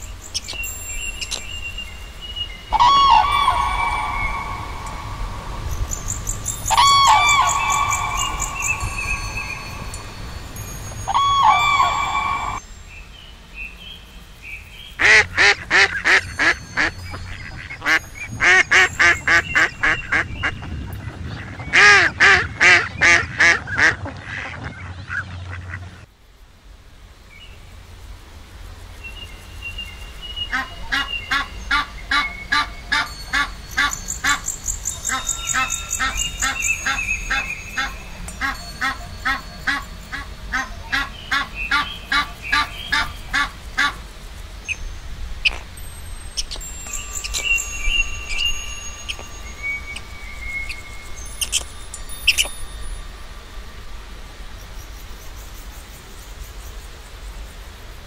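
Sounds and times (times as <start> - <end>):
waterfowl honking: 2.7 - 5.4, 6.6 - 10.2, 11.1 - 12.6, 15.0 - 20.6, 35.0 - 44.0
chorus of overlapping calls: 2.7 - 12.6.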